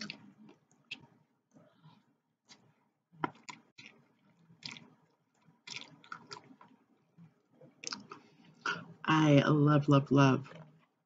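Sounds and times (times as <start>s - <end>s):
person chewing noodles: 0.0s - 1.2s, 2.4s - 8.6s.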